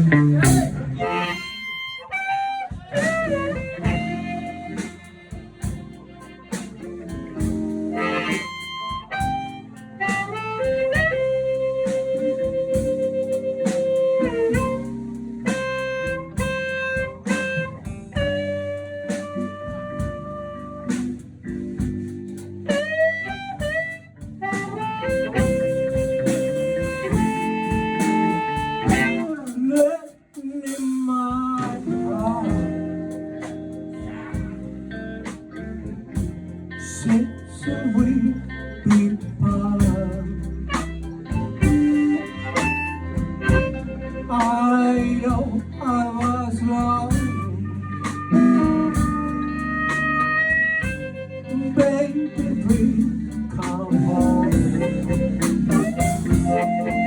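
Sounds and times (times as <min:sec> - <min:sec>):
harmonica bending long notes: 0:00.0 - 0:21.0, 0:22.3 - 0:29.5, 0:40.7 - 0:44.4, 0:47.3 - 0:57.0
guitar accompaniment: 0:00.0 - 0:57.0.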